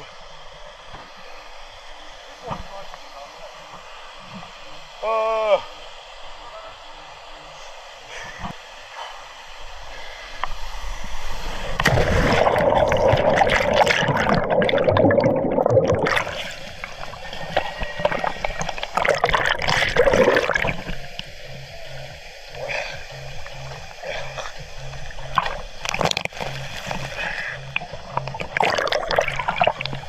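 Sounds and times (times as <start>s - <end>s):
water sloshing and splashing: 11.5s - 21.6s, 22.6s - 30.0s.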